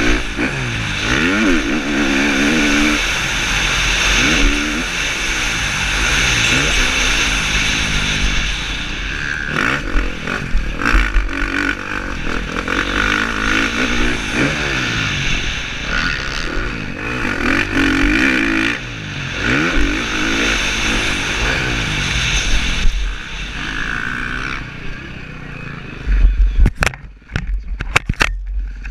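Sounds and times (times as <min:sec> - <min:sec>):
motocross engine revving: 0:00.0 - 0:26.4
wind noise on microphone: 0:13.6 - 0:24.2, 0:26.1 - 0:28.9.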